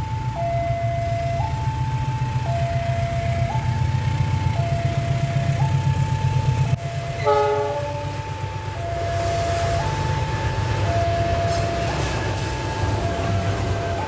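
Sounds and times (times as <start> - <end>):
diesel locomotive rumbling: 0.0 - 14.0
two-tone electronic warning alarm: 0.0 - 14.0
train horn blast: 7.2 - 8.3.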